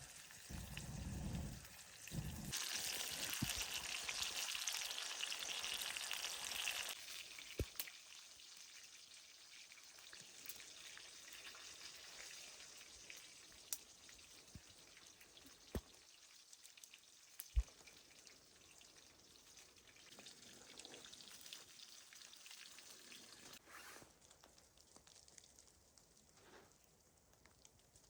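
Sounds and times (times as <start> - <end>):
sizzling hiss: 0.0 - 9.1.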